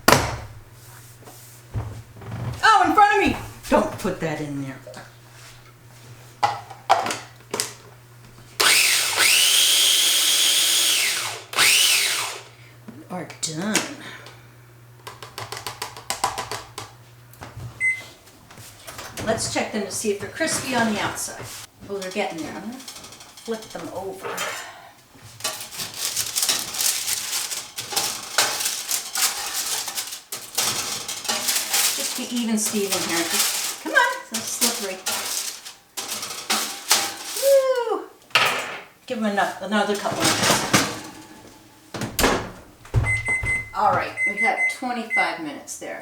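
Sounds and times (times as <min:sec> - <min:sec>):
blender motor whining: 0:08.6 - 0:12.6
spatula scraping a metal pan: 0:25.3 - 0:37.4.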